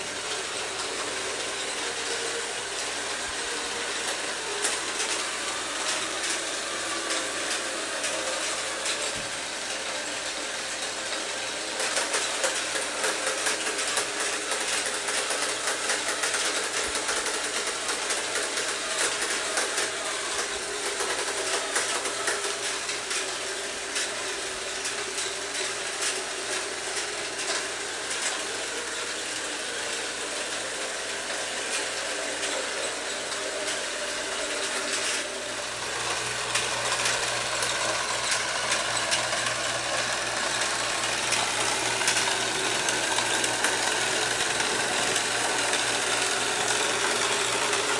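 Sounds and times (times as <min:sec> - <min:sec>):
toy motor whirring: 0:00.0 - 0:47.9
rapid clicking rattle: 0:10.8 - 0:47.9.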